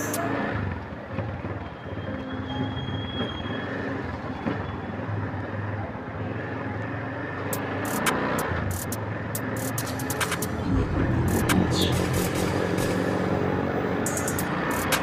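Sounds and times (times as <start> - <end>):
road noise: 0.0 - 15.0
motorcycle engine running: 9.7 - 15.0.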